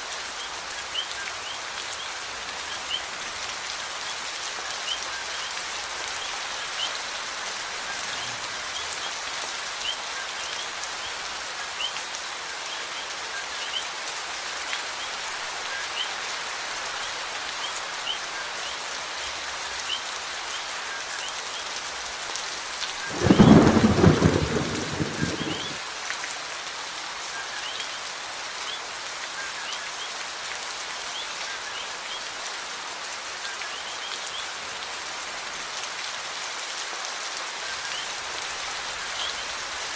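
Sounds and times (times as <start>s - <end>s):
steady rain falling: 0.0s - 39.9s
rumbling thunderclap: 23.1s - 25.8s.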